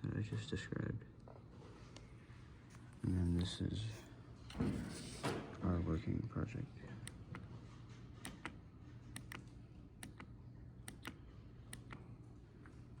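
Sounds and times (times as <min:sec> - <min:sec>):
faint steady hum: 0:00.0 - 0:13.0
pushbutton clicking: 0:08.3 - 0:08.6, 0:10.9 - 0:12.0.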